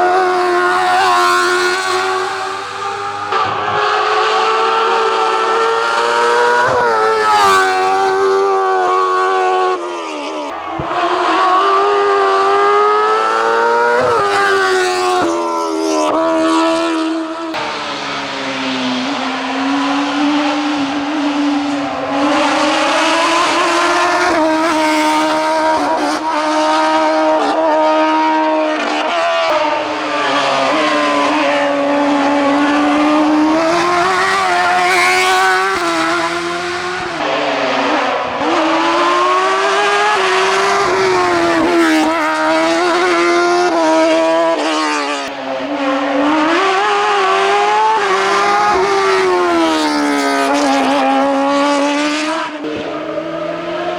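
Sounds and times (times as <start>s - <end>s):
racing car engine revving high: 0.0s - 53.9s.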